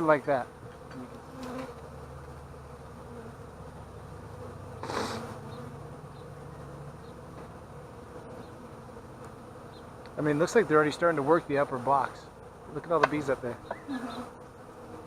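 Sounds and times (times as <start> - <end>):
honeybees buzzing: 0.0 - 15.0
brief hiss: 4.8 - 5.4.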